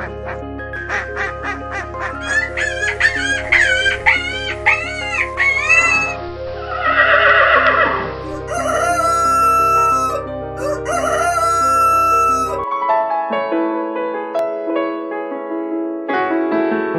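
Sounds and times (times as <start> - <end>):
soft piano music: 0.0 - 16.9
rooster crowing: 6.9 - 12.7.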